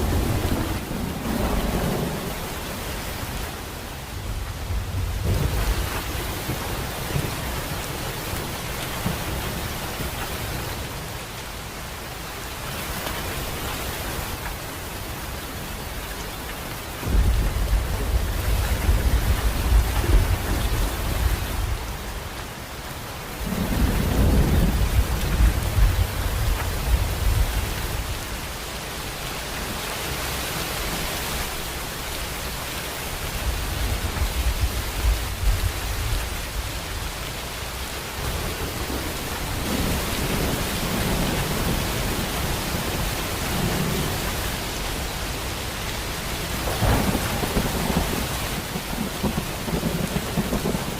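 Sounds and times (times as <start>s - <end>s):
thunder rumbling: 0.0s - 3.2s, 4.1s - 10.7s, 17.0s - 22.1s, 23.4s - 28.2s, 38.0s - 45.4s, 46.4s - 50.9s
heavy rain: 0.0s - 50.9s.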